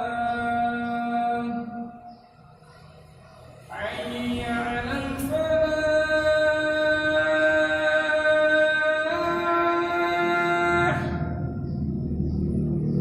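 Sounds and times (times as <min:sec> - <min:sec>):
person singing long held notes: 0:03.7 - 0:11.4.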